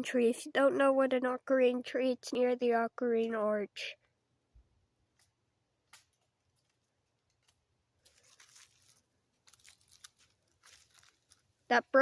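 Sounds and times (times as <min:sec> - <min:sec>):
faint clicks and crackles: 0:05.1 - 0:11.7.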